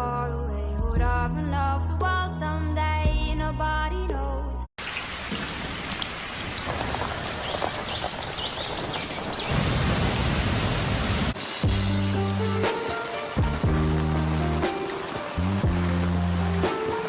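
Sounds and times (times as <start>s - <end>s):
steady rain falling: 4.8s - 17.0s.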